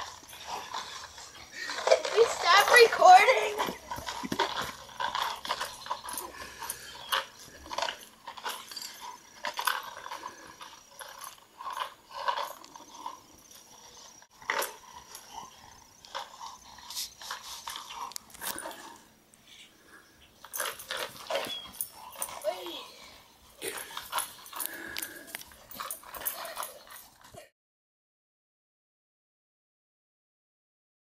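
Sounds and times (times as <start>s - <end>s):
rocks rattling in plastic bottle: 0.0s - 6.2s
dog sounds: 20.4s - 27.5s.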